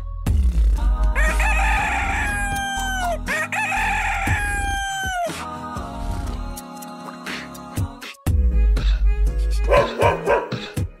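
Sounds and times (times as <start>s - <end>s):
rooster crowing: 1.2s - 5.4s.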